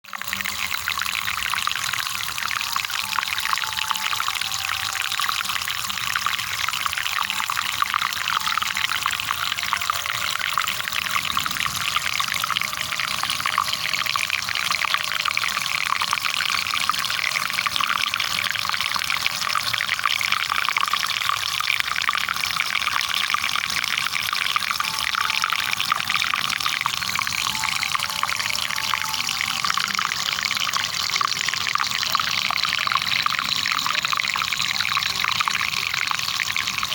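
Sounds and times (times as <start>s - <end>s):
water pouring and splashing: 0.0s - 36.9s.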